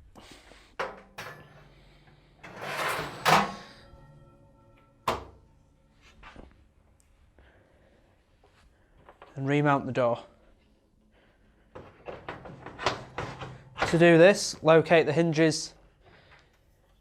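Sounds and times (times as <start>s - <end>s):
metal shelf scraping slide: 0.8s - 5.4s
metal shelf clunk: 0.8s - 5.9s, 11.9s - 14.2s.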